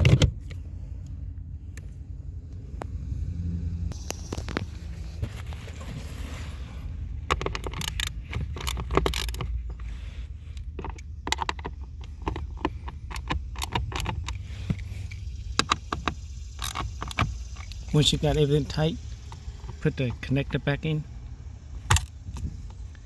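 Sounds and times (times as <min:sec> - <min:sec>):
low steady hum: 0:00.0 - 0:23.0
metallic clicks of screwdriver: 0:07.3 - 0:09.6.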